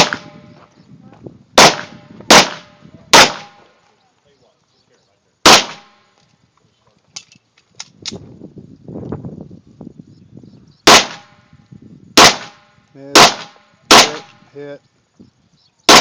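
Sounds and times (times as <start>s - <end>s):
pistol shots: 0.0s - 0.5s, 1.6s - 3.7s, 5.4s - 6.1s, 10.8s - 11.4s, 12.2s - 14.4s.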